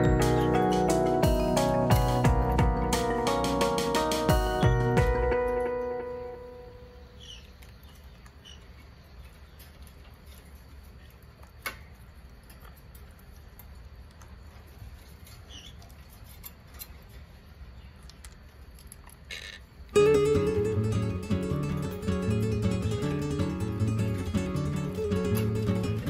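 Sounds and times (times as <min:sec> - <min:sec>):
strummed acoustic guitar music: 0:00.0 - 0:06.6, 0:20.0 - 0:26.0
parakeets pecking and nibbling: 0:07.2 - 0:20.0.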